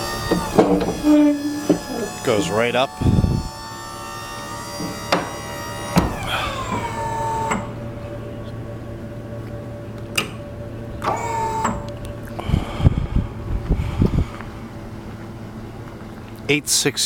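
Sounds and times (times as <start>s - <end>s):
high squeals falling in pitch: 0.0s - 8.2s
clunks: 0.0s - 12.4s
hydraulic pump humming: 0.0s - 17.0s.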